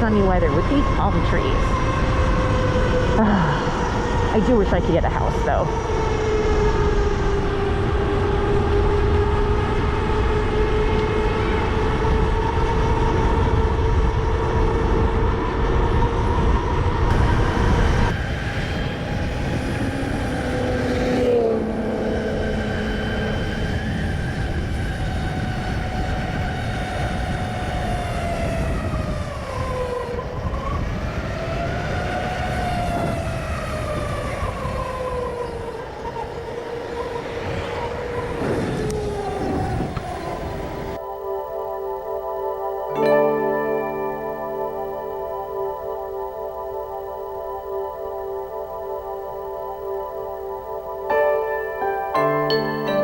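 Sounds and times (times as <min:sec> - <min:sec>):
wind rush on microphone: 0:00.0 - 0:41.0
motorcycle engine whining: 0:00.0 - 0:53.0.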